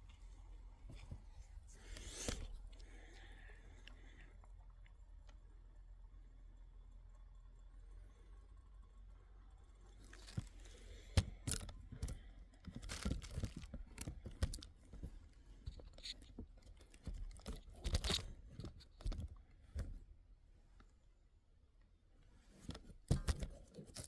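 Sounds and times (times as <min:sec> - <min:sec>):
crunching and crinkling: 0:00.0 - 0:05.1, 0:09.9 - 0:21.0, 0:22.2 - 0:24.0.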